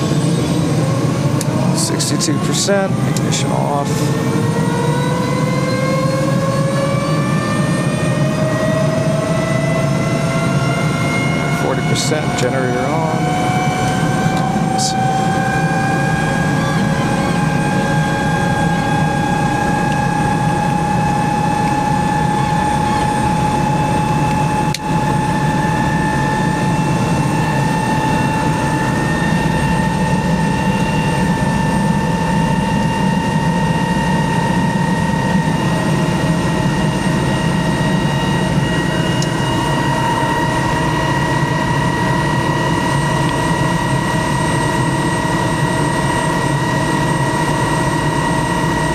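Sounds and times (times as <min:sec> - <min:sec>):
helicopter turbine whine: 0:00.0 - 0:48.9.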